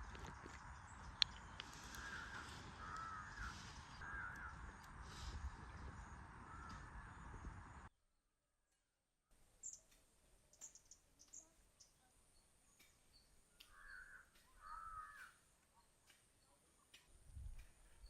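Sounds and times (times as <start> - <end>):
bird rasping calls: 1.7 - 4.6
faint bird chirps: 9.6 - 18.0.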